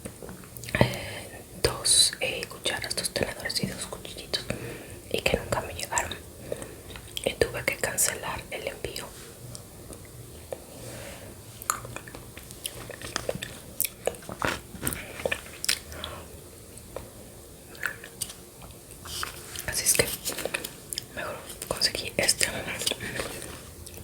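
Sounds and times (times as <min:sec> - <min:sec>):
wet chewing mouth clicks: 0:11.6 - 0:15.9.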